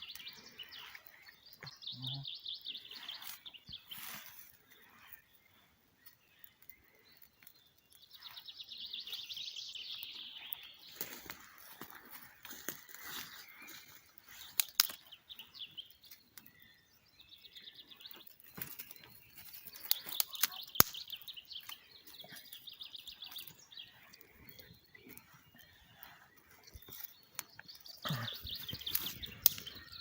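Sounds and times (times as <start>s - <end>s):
songbirds chirping trills: 0.0s - 30.0s
sharp cracks: 19.8s - 21.8s.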